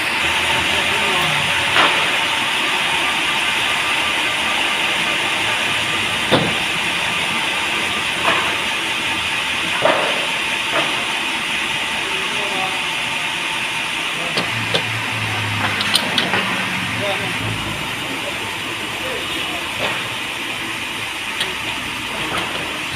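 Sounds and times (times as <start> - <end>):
sawmill machinery hissing: 0.0 - 22.9.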